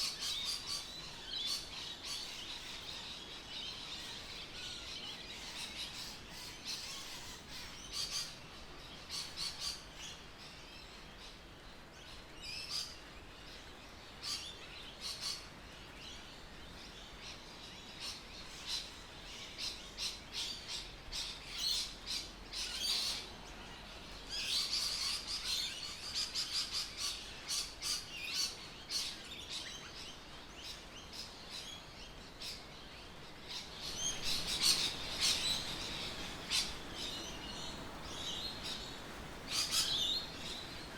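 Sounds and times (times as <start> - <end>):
faint steady hiss: 0.0 - 40.9
birds chirping: 16.8 - 40.9.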